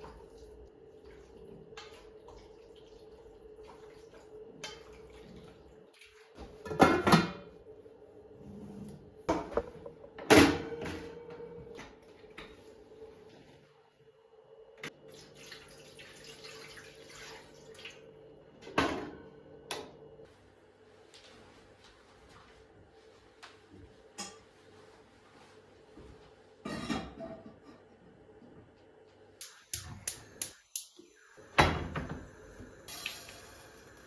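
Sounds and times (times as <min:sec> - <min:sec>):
kitchen clatters and knocks: 0:06.4 - 0:07.5, 0:09.3 - 0:11.6, 0:26.6 - 0:27.9.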